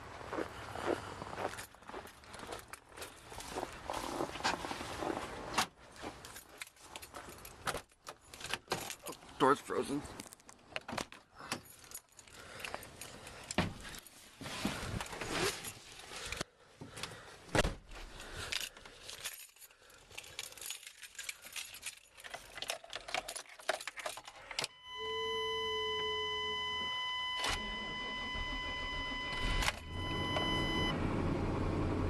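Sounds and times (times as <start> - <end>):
keys jangling: 6.2 - 9.3, 11.4 - 14.0, 18.1 - 24.6
handling knocks and rustles: 10.1 - 24.6
steady warning tone: 24.7 - 31.0.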